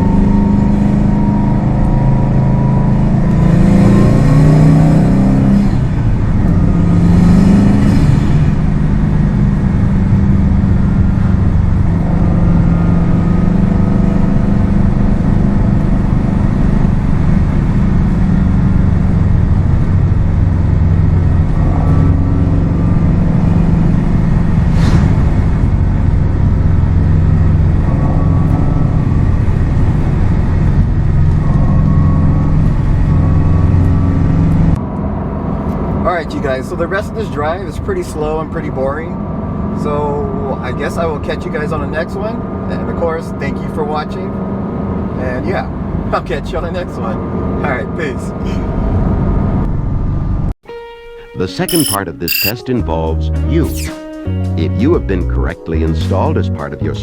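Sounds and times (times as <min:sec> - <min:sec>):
car engine accelerating: 0:00.0 - 0:35.9
brief sharp sound: 0:51.7 - 0:52.6.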